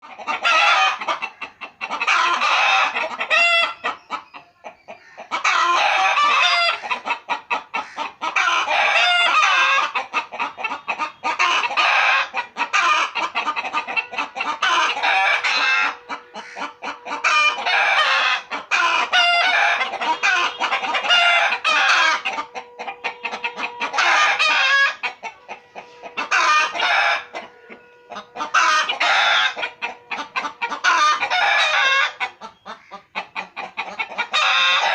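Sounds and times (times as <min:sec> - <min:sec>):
chickens clucking: 0:00.0 - 0:34.9
faint steady tone: 0:19.7 - 0:33.1.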